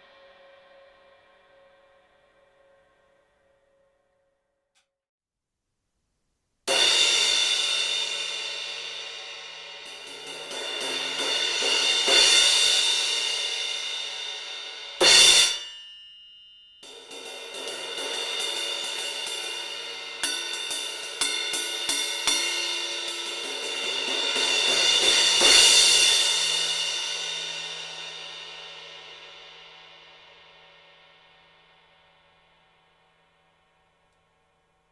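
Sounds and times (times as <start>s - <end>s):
cymbal struck and ringing: 6.7s - 30.5s
quick cymbal hits: 16.8s - 30.4s.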